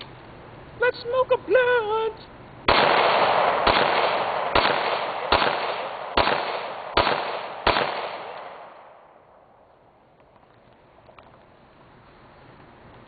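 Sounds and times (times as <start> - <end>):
pistol shots with long echo: 2.7 - 9.7.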